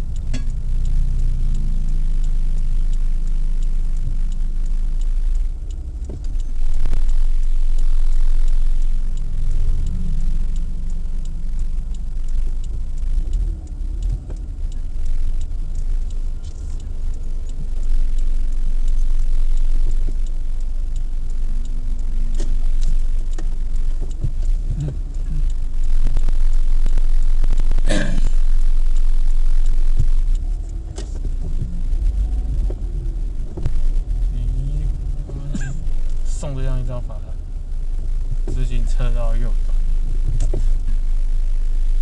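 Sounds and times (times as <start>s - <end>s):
car cabin rumble: 0.0s - 42.0s.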